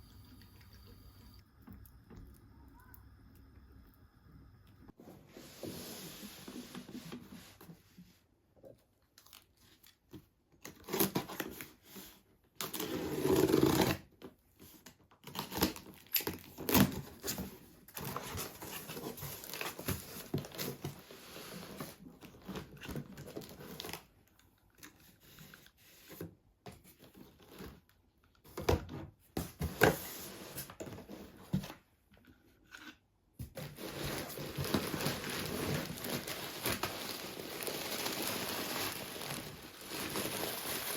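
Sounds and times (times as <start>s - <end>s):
wrapping material crinkling and tearing: 33.6s - 40.9s.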